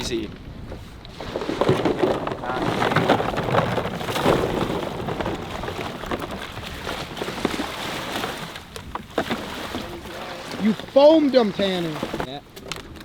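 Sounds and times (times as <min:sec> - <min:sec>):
water splashing and lapping: 0:00.8 - 0:12.4.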